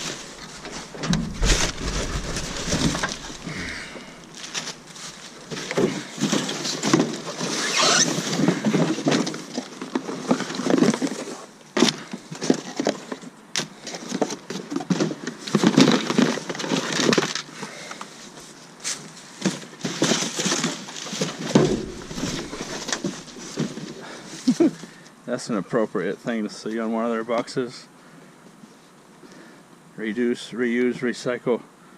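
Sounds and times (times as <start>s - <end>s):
sharp knocks and clatters: 0.0s - 4.8s, 21.4s - 23.8s
cardboard boxes rustling and scraping: 0.0s - 13.3s, 18.2s - 24.6s.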